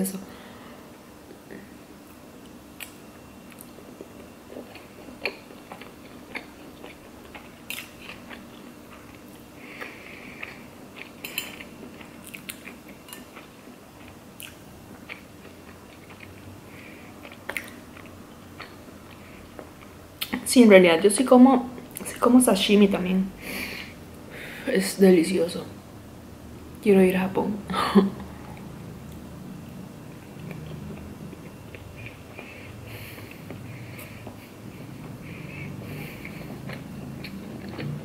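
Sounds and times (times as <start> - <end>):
person chewing: 1.5 - 20.4, 30.1 - 38.0.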